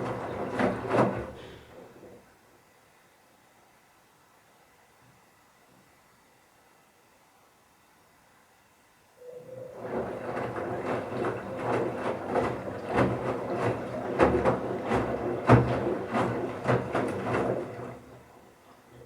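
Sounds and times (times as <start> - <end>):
washing machine drum turning: 0.0 - 1.6, 9.4 - 18.4.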